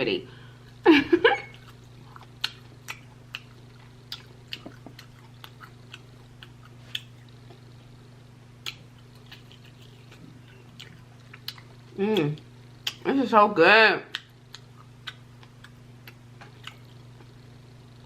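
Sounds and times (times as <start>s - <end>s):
person chewing food: 0.6s - 13.0s, 14.1s - 17.4s.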